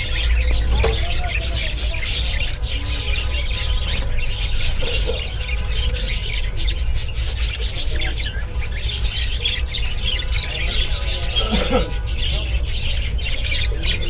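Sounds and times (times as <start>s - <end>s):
small birds chirping and squawking: 0.0s - 14.0s.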